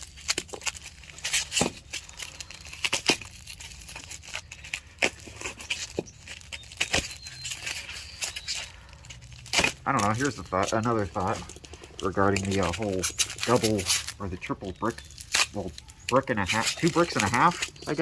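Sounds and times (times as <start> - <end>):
packing material crinkling and tearing: 0.0 - 18.0.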